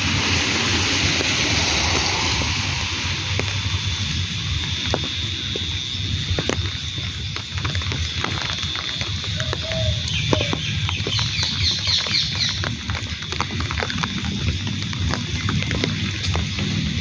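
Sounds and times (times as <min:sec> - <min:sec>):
low rumble: 0:00.0 - 0:09.3
raindrops tapping: 0:00.0 - 0:17.0
bird chirps: 0:09.4 - 0:12.6.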